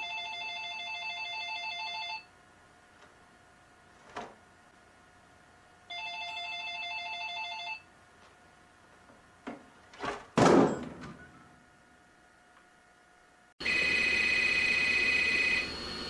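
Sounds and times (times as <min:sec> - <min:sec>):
telephone warbling ring: 0:05.9 - 0:07.8, 0:13.6 - 0:15.7.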